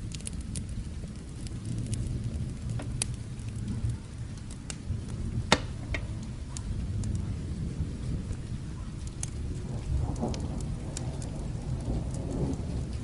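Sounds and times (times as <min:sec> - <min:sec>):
distant thunder rumble: 0:00.0 - 0:13.0
fireplace crackling and popping: 0:00.0 - 0:13.0
light rain: 0:00.0 - 0:13.0.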